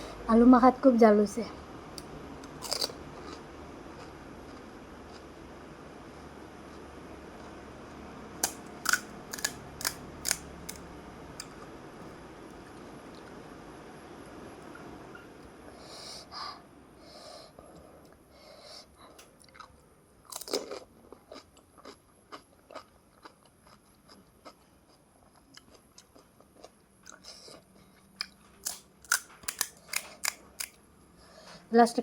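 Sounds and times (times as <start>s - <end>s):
crisp shells crunching when chewed: 2.4s - 3.4s, 8.4s - 10.8s, 19.4s - 30.8s.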